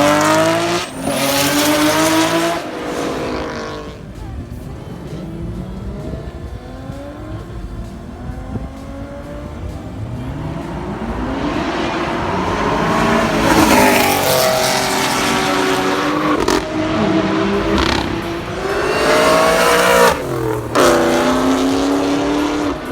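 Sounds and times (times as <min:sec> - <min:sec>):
car engine accelerating: 0:00.0 - 0:22.9
sharp exhaust cracks: 0:05.4 - 0:22.9.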